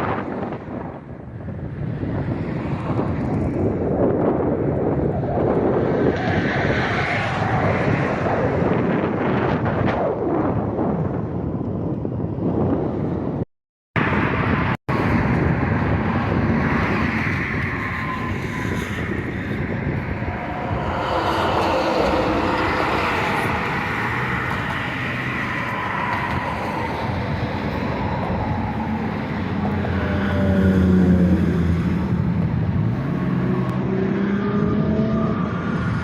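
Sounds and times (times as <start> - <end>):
diesel locomotive engine passing: 18.1 - 34.0.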